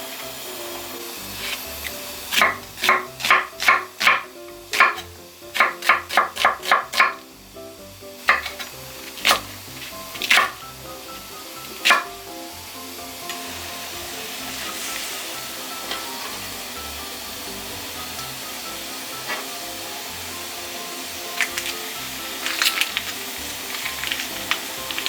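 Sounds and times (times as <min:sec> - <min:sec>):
background music: 0:00.0 - 0:25.0
knife chopping on cutting board: 0:02.3 - 0:07.2, 0:08.3 - 0:09.5, 0:10.2 - 0:10.6, 0:11.8 - 0:12.1.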